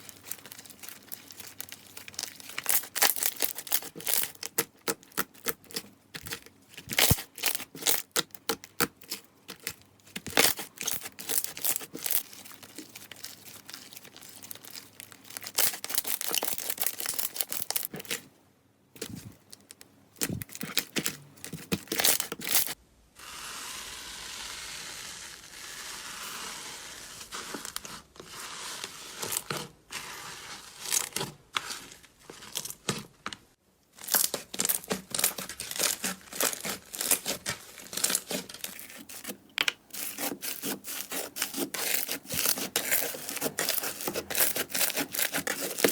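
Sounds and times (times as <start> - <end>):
slime crackling and popping: 0.0 - 18.2.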